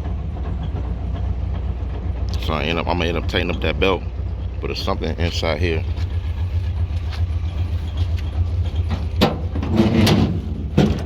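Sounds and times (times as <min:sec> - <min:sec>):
pickup engine idling: 0:00.0 - 0:11.0
metallic knocks and rattles: 0:06.2 - 0:11.0.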